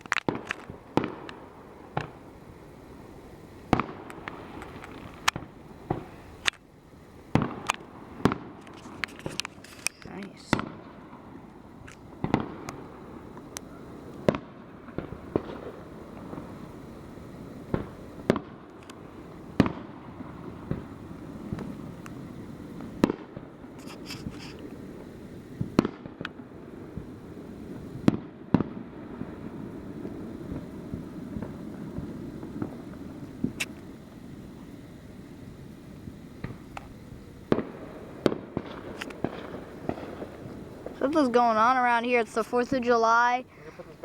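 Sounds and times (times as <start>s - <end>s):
distant explosions rumbling: 0.0s - 44.0s
fireworks bangs: 0.0s - 44.0s.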